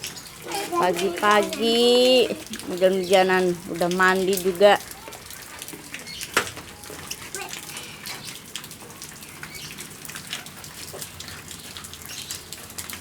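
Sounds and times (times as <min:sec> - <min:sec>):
raindrops splashing: 0:00.0 - 0:13.0.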